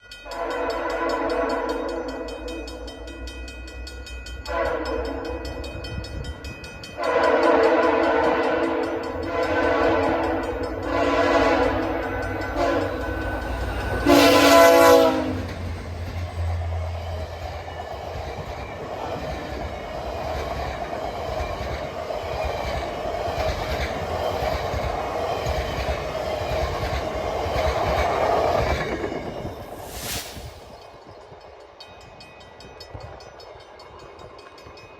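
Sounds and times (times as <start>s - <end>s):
train cars rumbling over rails: 0.0s - 34.9s
diesel locomotive horn blasts: 0.2s - 2.6s, 4.4s - 5.6s, 7.0s - 15.6s.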